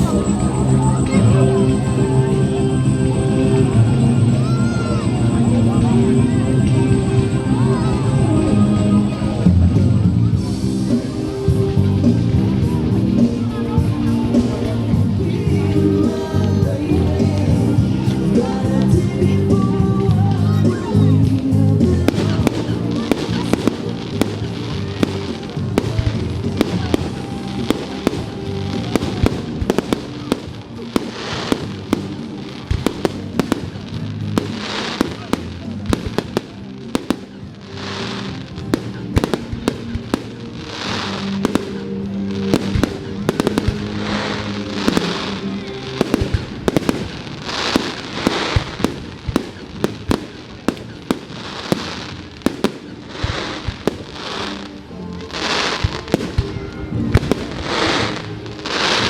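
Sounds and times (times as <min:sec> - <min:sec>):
fireworks crackling: 0:00.0 - 0:59.0
music: 0:00.0 - 0:59.0
fireworks bangs: 0:21.9 - 0:59.0.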